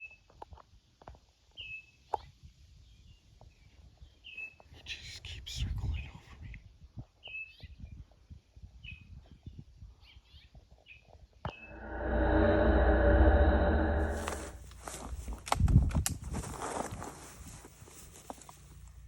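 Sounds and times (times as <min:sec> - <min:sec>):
noisy rustle with low rumble: 0:11.6 - 0:19.0.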